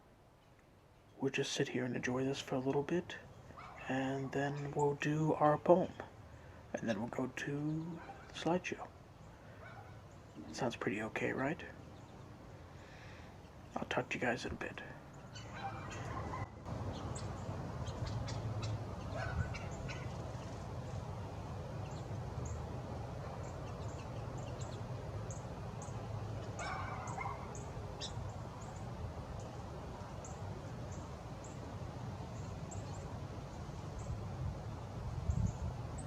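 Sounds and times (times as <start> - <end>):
small songbirds chirping: 0.4 - 36.0
louder lower bird calls: 15.1 - 31.7
steady low rumble: 16.0 - 36.0.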